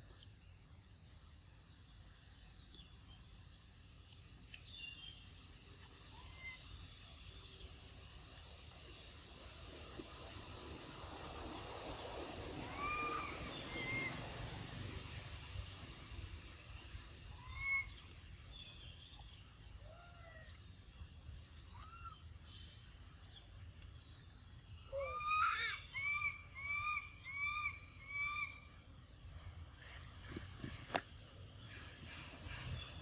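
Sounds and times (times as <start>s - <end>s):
birds chirping and whistling: 12.0s - 20.9s, 21.5s - 33.0s
loud arching bird whistles: 12.6s - 14.2s, 17.3s - 18.0s, 25.0s - 28.6s.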